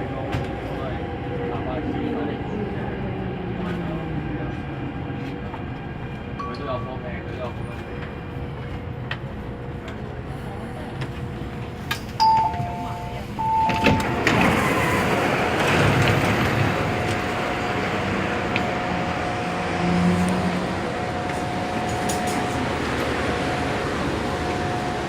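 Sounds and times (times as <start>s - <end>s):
train carriage running noise: 0.0s - 25.0s
two-tone electronic chime: 12.2s - 14.3s.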